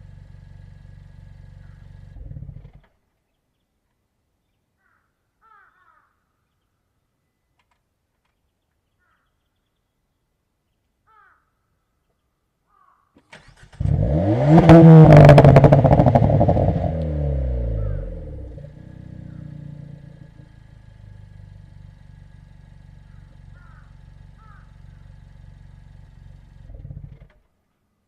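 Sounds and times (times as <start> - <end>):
car engine idling: 0.0 - 2.9, 13.8 - 27.4
crow cawing faintly: 4.8 - 6.5, 9.0 - 9.4, 11.0 - 11.9, 12.6 - 13.3, 17.7 - 18.1, 19.2 - 19.7, 23.0 - 25.0.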